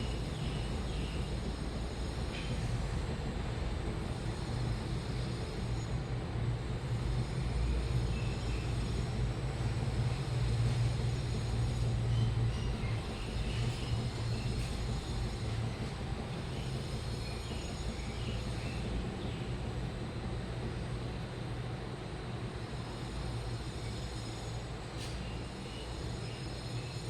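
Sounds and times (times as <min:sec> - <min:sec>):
washing machine running: 0:06.2 - 0:23.7.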